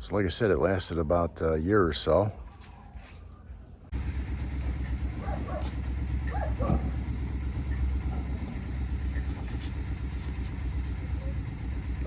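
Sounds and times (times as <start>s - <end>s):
truck engine idling: 3.9s - 12.0s
dog barking: 5.1s - 7.1s, 8.0s - 8.6s.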